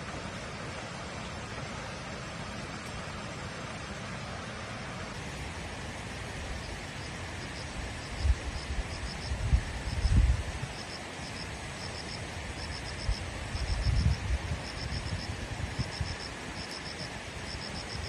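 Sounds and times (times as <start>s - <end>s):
steady hiss: 0.0s - 18.0s
cricket chirping: 6.5s - 18.0s.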